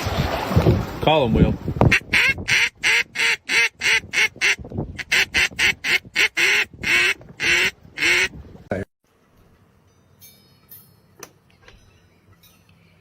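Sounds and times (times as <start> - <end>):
duck call quacks: 1.9 - 8.3.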